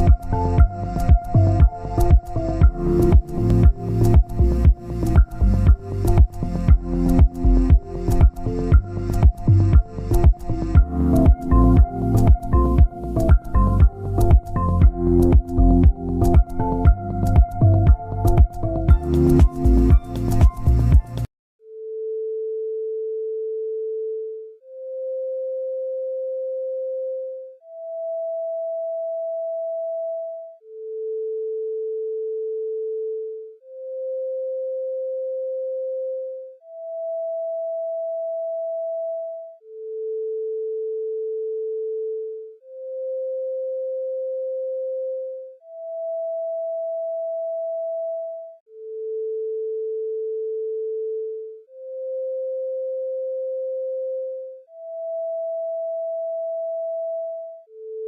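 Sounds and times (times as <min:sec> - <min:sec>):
electronic tones: 0:00.0 - 0:21.3
electronic sine tones: 0:00.0 - 0:58.0.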